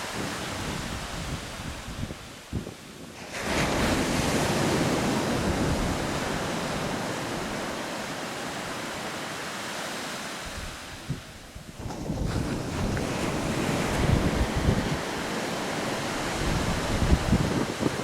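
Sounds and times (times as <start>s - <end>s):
wave wash rushing up sand: 0.0s - 18.0s
wave breaking on sand: 3.2s - 8.8s, 11.8s - 17.9s.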